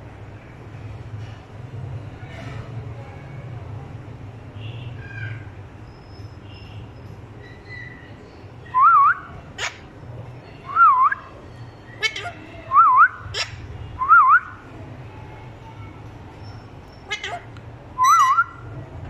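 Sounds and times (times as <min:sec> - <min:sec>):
parrot whistling wavy phrase: 0:18.0 - 0:18.6.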